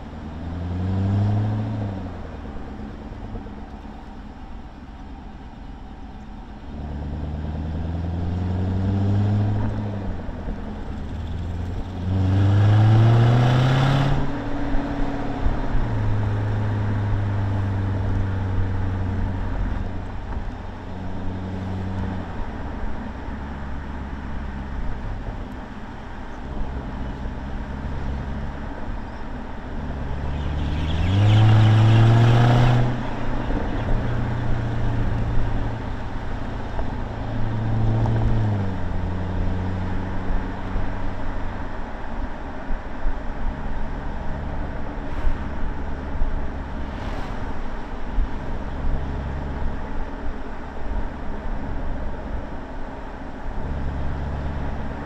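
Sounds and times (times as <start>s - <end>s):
car engine revving: 6.6s - 19.9s, 29.7s - 41.3s.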